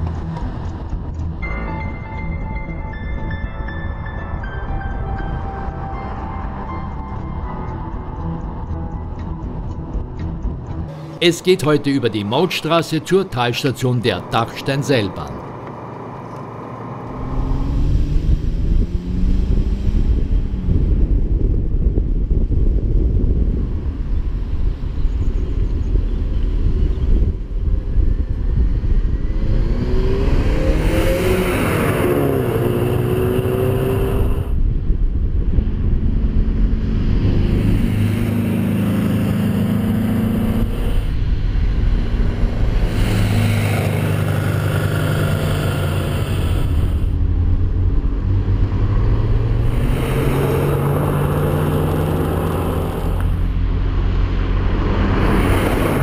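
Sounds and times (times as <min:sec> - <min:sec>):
cars passing by: 0:00.0 - 0:25.7, 0:26.4 - 0:56.0
sports car engines accelerating: 0:00.0 - 0:56.0.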